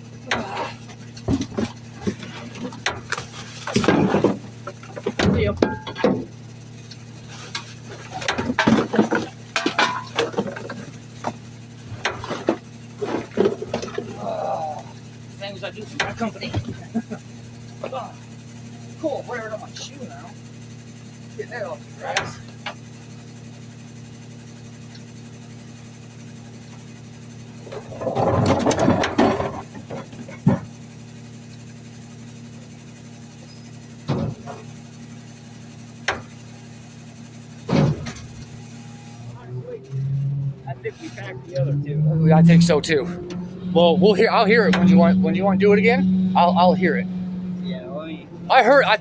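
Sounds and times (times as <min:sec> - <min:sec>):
garbage truck engine idling: 0:00.0 - 0:49.0
trash bags clattering and rustling: 0:00.6 - 0:06.4, 0:07.3 - 0:14.3, 0:27.6 - 0:30.8.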